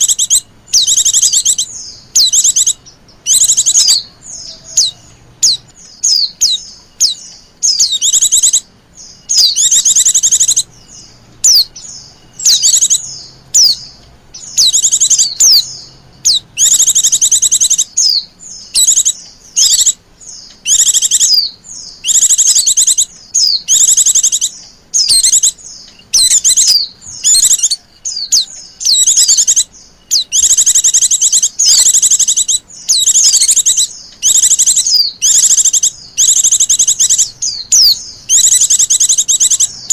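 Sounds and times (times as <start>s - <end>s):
bird chattering trills: 0.0s - 39.9s.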